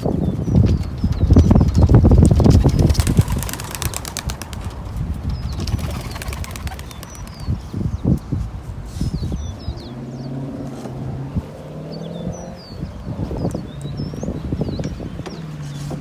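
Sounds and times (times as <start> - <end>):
pigeon wings flapping: 0.6 - 7.7.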